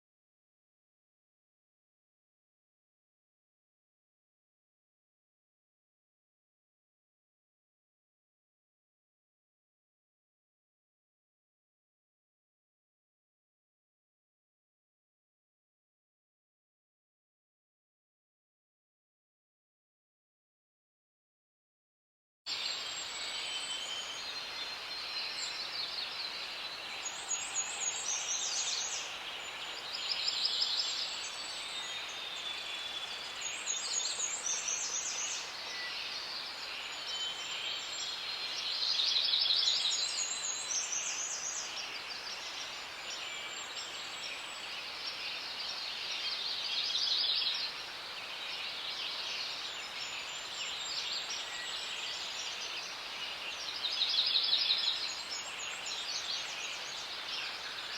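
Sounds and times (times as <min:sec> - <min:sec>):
steady high background hiss: 0:22.5 - 0:57.9.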